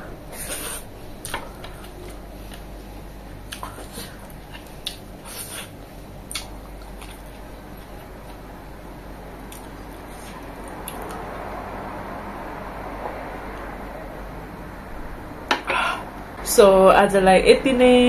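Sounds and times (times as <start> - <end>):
person chewing food: 3.4 - 8.5, 9.4 - 11.4
mouth clicks and smacks: 6.3 - 7.4.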